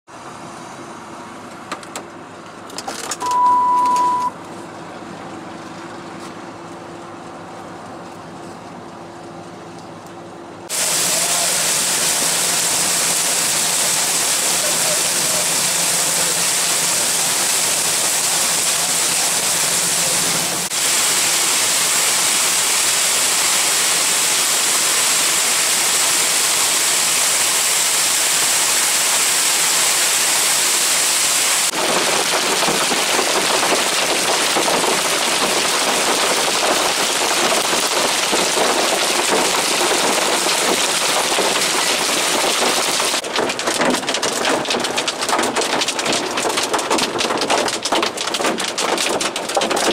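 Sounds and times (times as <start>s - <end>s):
heavy rain pouring: 10.7s - 49.9s.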